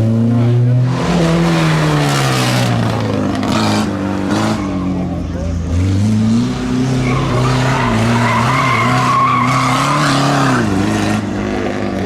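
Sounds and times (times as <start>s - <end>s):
car engine under load: 0.0s - 12.0s
tyres squealing: 6.6s - 11.0s.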